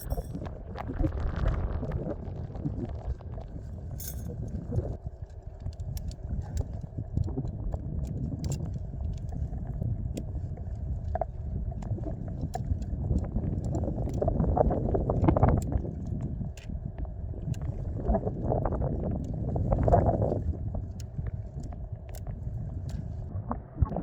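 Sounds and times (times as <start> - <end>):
wind buffeting microphone: 0.0 - 24.0
light clicks and taps: 5.2 - 18.0, 19.0 - 23.3.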